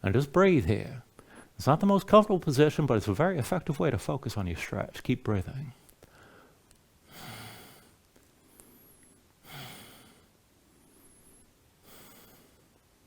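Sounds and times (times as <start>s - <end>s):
slow breaths through nose: 1.2s - 1.6s, 6.0s - 12.8s.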